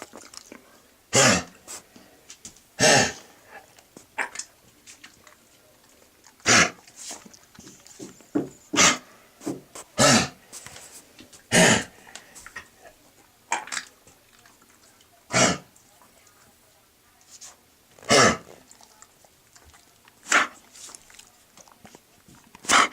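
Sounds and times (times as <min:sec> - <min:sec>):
dog coughing: 0:01.1 - 0:01.8, 0:02.8 - 0:04.4, 0:06.4 - 0:06.8, 0:08.3 - 0:10.4, 0:11.5 - 0:12.0, 0:15.3 - 0:15.7, 0:18.0 - 0:18.6, 0:20.2 - 0:20.6, 0:22.6 - 0:22.9.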